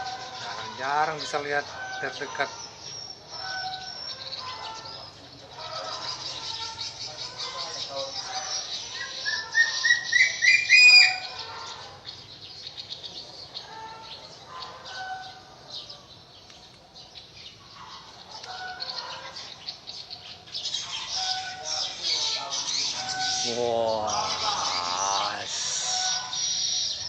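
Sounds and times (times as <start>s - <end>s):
eagle shrill whistled calls: 1.7s - 11.7s, 20.6s - 27.0s.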